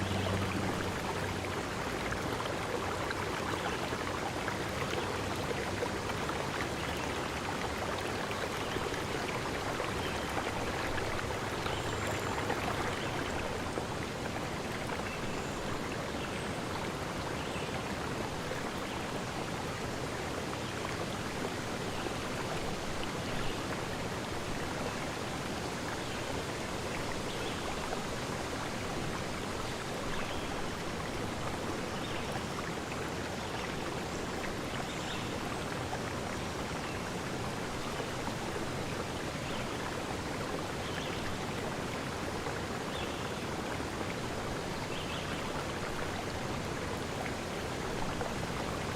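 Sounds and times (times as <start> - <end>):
forest stream rushing: 0.0 - 48.9.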